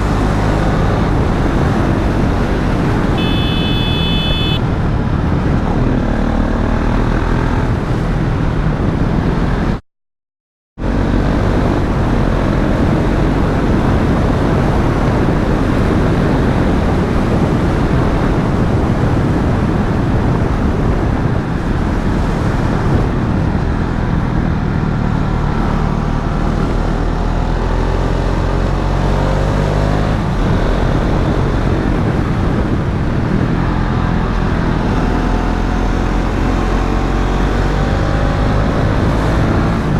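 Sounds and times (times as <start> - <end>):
motorcycle engine revving: 0.0 - 7.7
wind and road noise: 0.0 - 9.8, 10.8 - 39.9.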